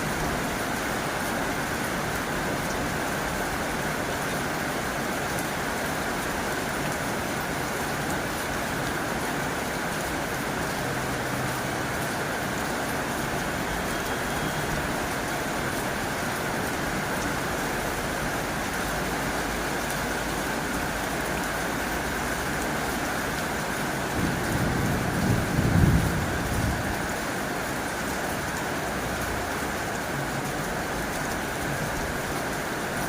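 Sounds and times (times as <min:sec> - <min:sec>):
heavy rain on a tin roof: 0:00.0 - 0:33.0.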